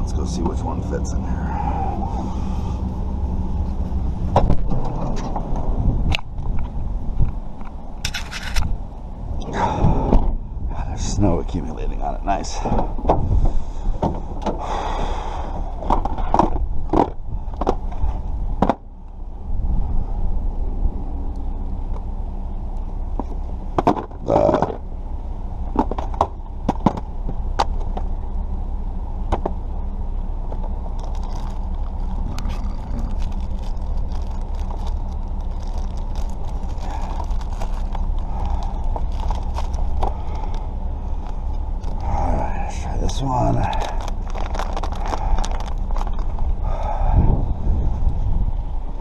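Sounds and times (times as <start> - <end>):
low rumble: 0.0 - 49.0.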